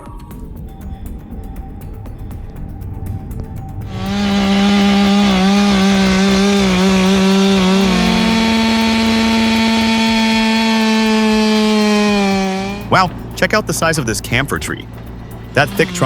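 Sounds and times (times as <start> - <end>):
chainsaw running at high revs: 3.9 - 16.0.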